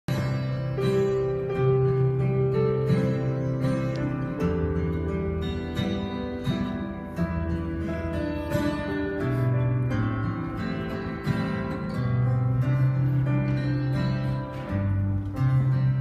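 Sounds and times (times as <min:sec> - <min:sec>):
acoustic guitar music: 0:00.1 - 0:16.0.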